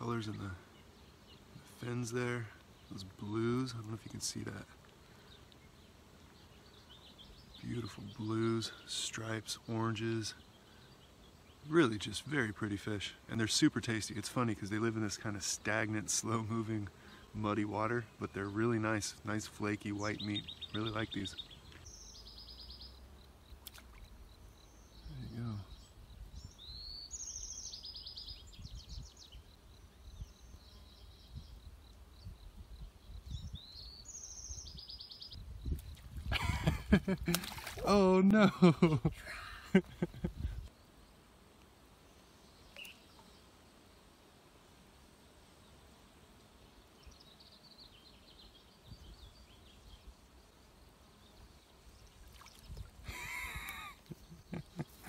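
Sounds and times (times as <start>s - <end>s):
faint bird chirps: 19.9s - 38.0s, 42.0s - 43.6s, 46.6s - 55.0s
songbird whistle and trills: 42.5s - 43.4s.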